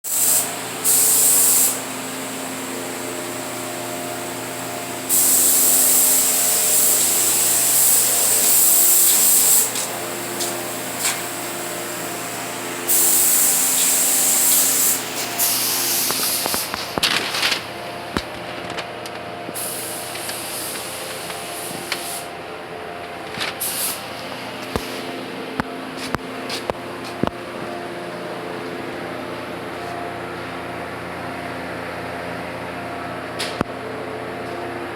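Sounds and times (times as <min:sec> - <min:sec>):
paint spraying in hissing bursts: 0:00.1 - 0:17.0, 0:19.6 - 0:22.3, 0:23.6 - 0:24.1
steady hum: 0:00.1 - 0:34.9.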